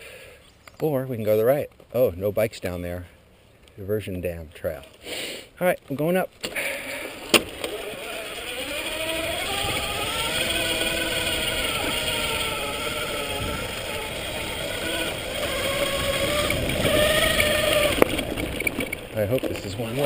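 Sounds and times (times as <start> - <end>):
wind: 0.0 - 20.0
tyres rumbling on dirt: 5.9 - 20.0
electric bike motor whining: 6.9 - 20.0.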